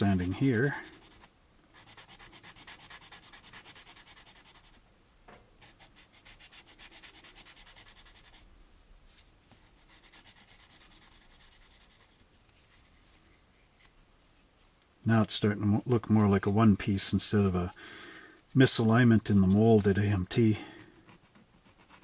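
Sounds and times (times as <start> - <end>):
sandpaper rubbing on plastic: 0.0 - 4.8, 5.6 - 8.5, 9.1 - 13.7, 21.0 - 22.0.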